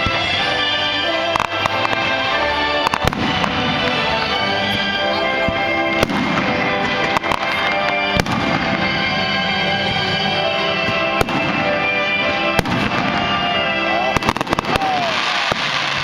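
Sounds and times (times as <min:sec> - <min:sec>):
fireworks bangs: 0:00.0 - 0:16.0
loud show music: 0:00.0 - 0:16.0.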